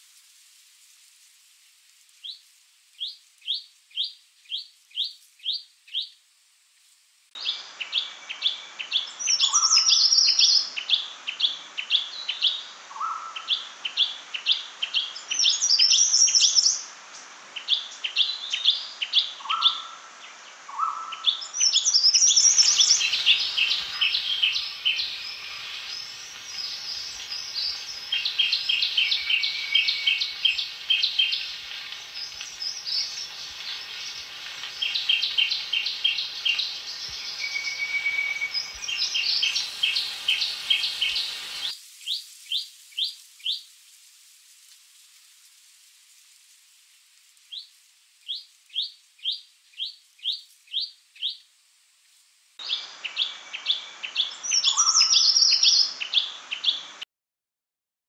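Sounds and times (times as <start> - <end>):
background hiss: 0.0 - 57.0
bird chipping notes: 22.4 - 41.7.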